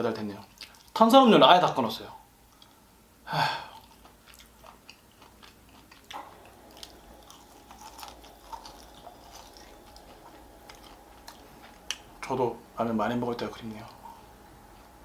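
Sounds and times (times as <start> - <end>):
person chewing food: 0.4 - 1.0, 2.5 - 2.8, 3.6 - 12.3.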